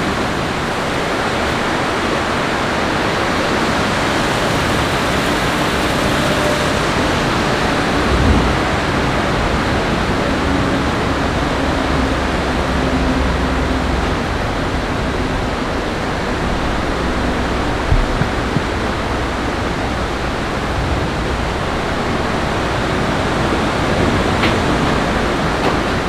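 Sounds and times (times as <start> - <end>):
falling water rushing: 0.0 - 10.5.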